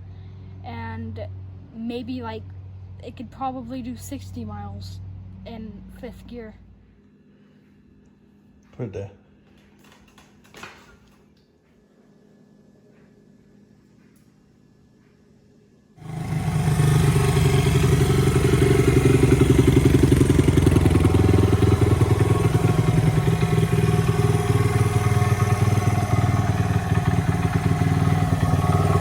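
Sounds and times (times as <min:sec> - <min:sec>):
motorcycle engine running: 0:16.0 - 0:29.0.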